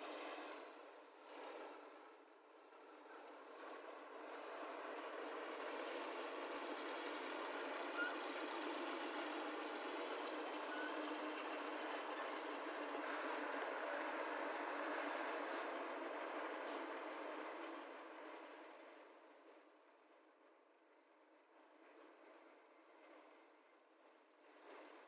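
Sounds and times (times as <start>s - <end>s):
diesel engines running: 2.9s - 17.7s.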